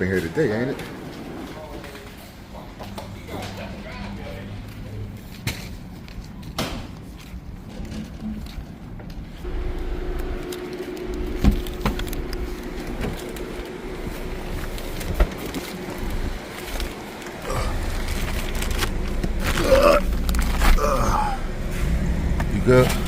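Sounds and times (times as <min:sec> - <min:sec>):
car engine running: 0:09.4 - 0:23.0.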